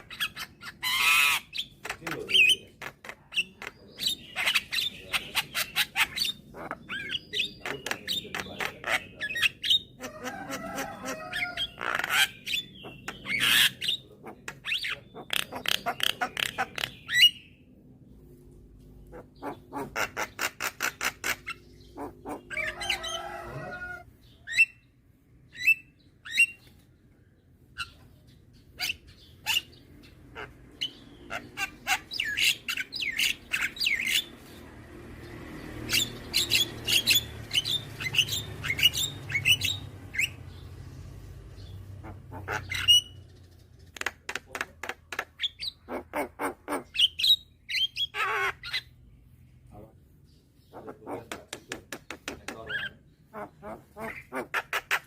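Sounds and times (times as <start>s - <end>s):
myna clicks and squawks: 0.0s - 17.4s.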